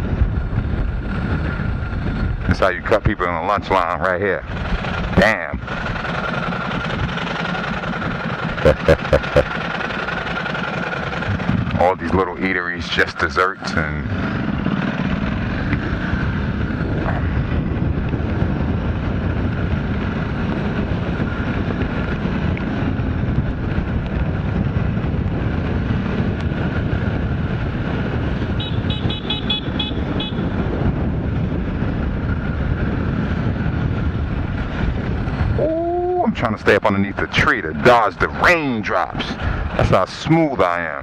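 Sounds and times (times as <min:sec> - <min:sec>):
wind noise: 0:00.0 - 0:07.2, 0:11.1 - 0:40.6
motorcycle engine: 0:04.4 - 0:12.8, 0:13.6 - 0:36.1
short high beeps: 0:08.6 - 0:09.5.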